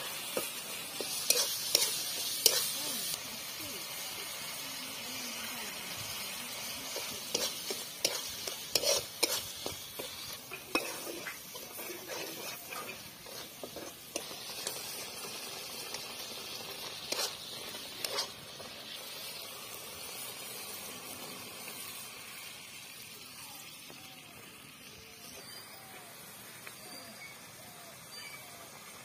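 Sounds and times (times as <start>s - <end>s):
masala sizzling in iron pan: 0.0s - 29.0s
metal spatula scraping and knocking: 7.3s - 15.0s, 17.0s - 18.4s.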